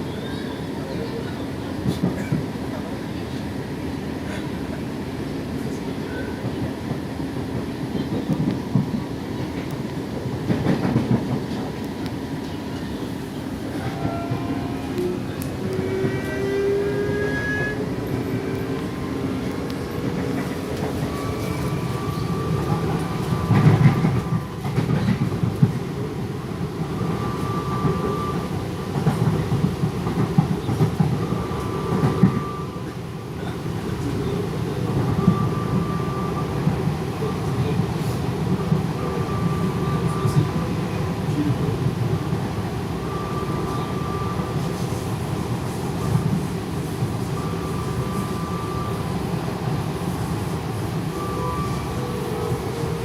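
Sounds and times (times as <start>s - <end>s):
train wheels rumbling on track: 0.0s - 53.0s.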